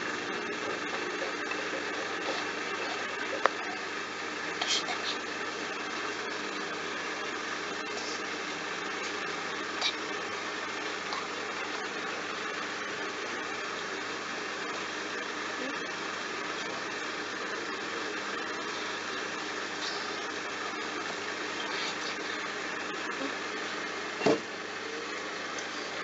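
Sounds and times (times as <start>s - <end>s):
washing machine humming: 0.0s - 26.0s.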